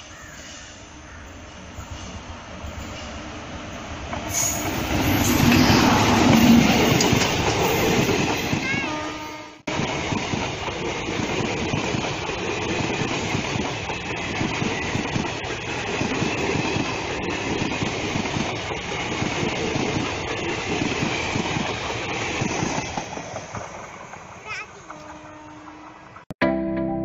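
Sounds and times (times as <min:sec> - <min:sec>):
train wheels on rails: 0:00.0 - 0:26.3
clickety-clack over rail joints: 0:04.0 - 0:08.9, 0:09.7 - 0:25.3.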